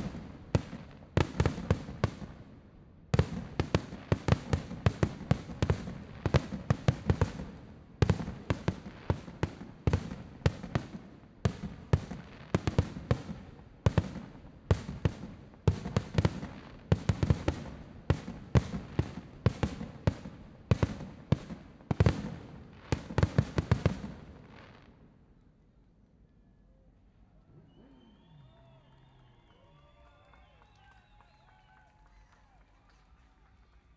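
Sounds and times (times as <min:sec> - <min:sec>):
fireworks bursting: 0:00.0 - 0:25.1.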